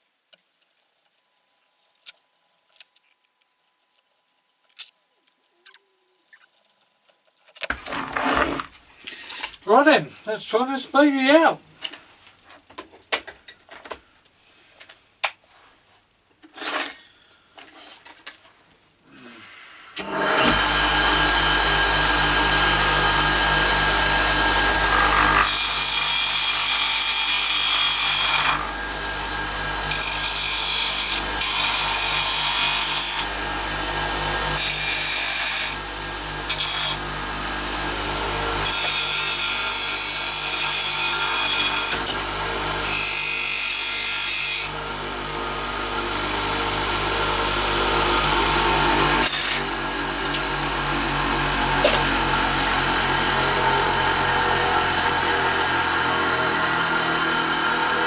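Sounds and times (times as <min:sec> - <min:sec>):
harsh grinding noise: 0:07.6 - 0:11.6, 0:20.0 - 0:58.0
bench grinder humming: 0:07.7 - 0:10.8, 0:20.0 - 0:58.0.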